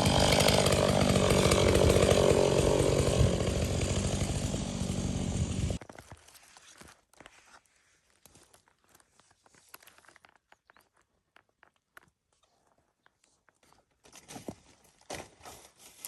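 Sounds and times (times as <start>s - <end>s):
chainsaw running: 0.0s - 5.8s
faint clicks and crunches: 5.8s - 14.4s.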